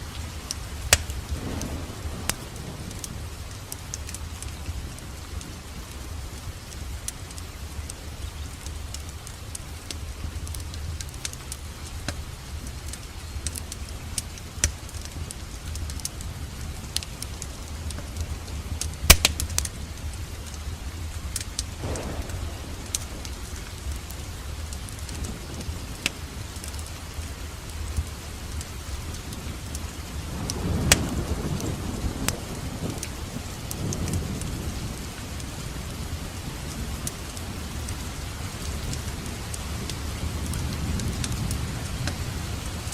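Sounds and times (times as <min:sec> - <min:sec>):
wood fire crackling: 0:00.0 - 0:42.9
sharp pops of fire: 0:00.5 - 0:03.1, 0:12.0 - 0:16.2, 0:18.8 - 0:19.8, 0:21.4 - 0:26.9, 0:30.5 - 0:31.1.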